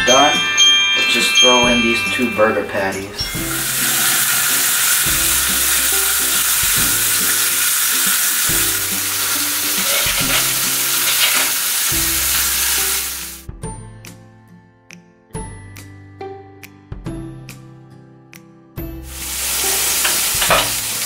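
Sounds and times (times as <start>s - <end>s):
background music: 0.0s - 21.0s
burger patties sizzling in a pan: 3.4s - 13.4s, 19.1s - 21.0s.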